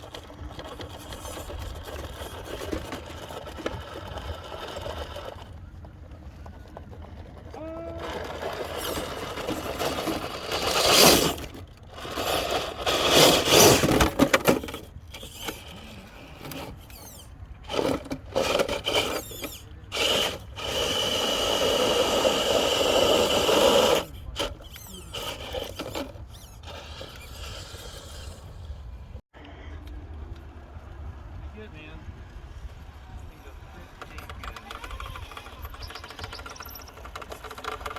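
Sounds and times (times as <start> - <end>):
electric motor whining: 7.5 - 29.0.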